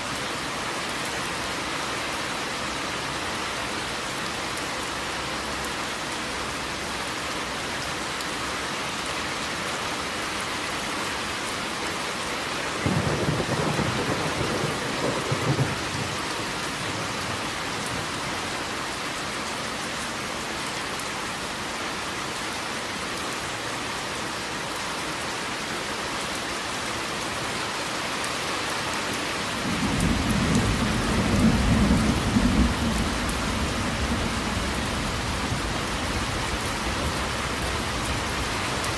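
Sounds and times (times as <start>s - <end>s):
heavy rain falling: 0.0s - 38.9s
thunder rumbling: 12.8s - 18.2s, 29.6s - 38.0s.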